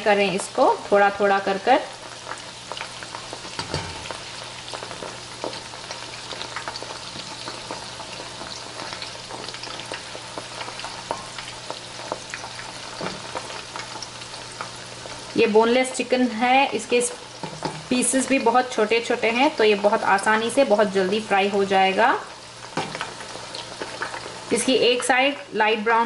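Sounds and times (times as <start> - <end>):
chicken sizzling in hot oil: 0.0 - 26.0
metal spoon against pan: 3.6 - 4.2.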